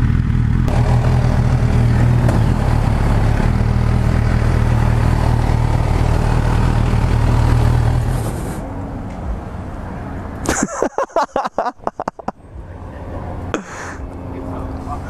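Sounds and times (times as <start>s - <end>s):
motorcycle engine running at low revs: 0.0s - 8.6s.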